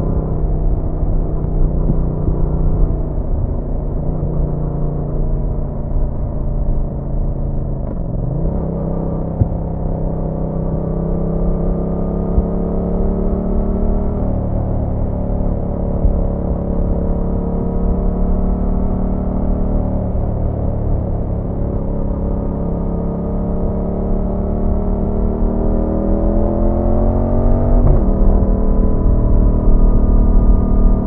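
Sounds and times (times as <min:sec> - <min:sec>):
motorcycle engine running: 0:00.0 - 0:18.8.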